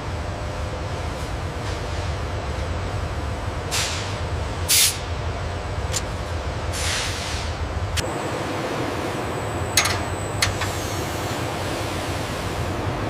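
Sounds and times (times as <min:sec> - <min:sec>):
low machine rumble: 0:07.6 - 0:13.0.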